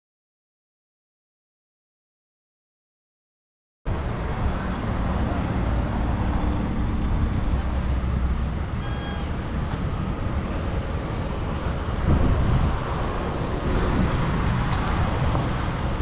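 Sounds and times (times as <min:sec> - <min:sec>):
road traffic rumble: 0:03.9 - 0:16.0
short high tone: 0:08.8 - 0:09.3.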